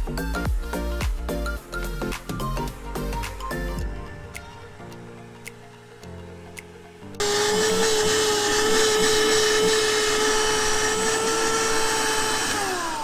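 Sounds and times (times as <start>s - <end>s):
electric motor whine: 7.2s - 13.0s.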